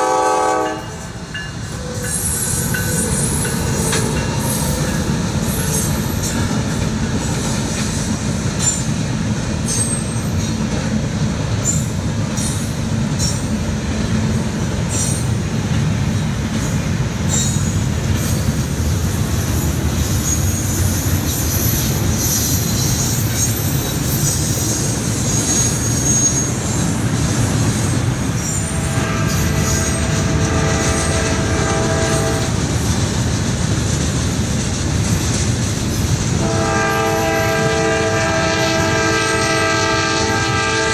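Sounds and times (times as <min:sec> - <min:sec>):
train horn: 0:00.0 - 0:01.4, 0:28.4 - 0:32.6, 0:36.4 - 0:40.9
train wheels rumbling on rail: 0:00.0 - 0:40.9
wheel squeal: 0:20.1 - 0:26.9.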